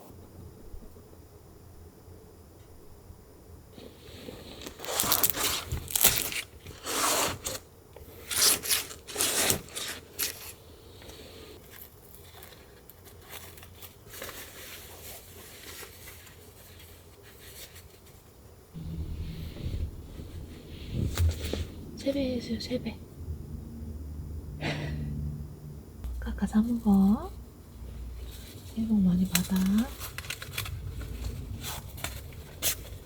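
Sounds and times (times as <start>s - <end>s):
rustling and tearing scrapes: 4.0s - 10.6s, 11.6s - 19.2s, 28.1s - 33.0s.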